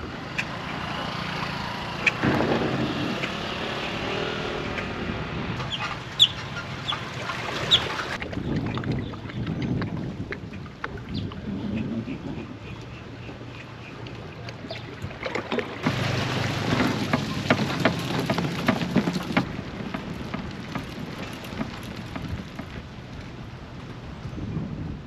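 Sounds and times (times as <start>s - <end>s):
wind on microphone: 2.2s - 5.8s, 7.8s - 12.8s, 16.6s - 25.0s
water splashing against a kayak: 14.1s - 23.4s.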